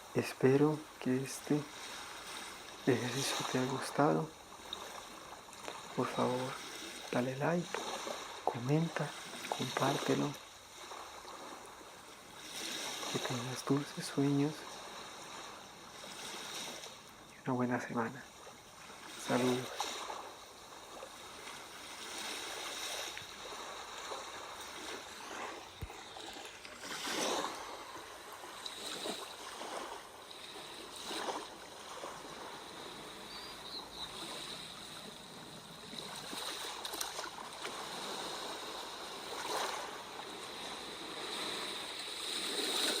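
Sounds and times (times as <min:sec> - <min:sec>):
sea waves washing on shore: 0:00.0 - 0:43.0.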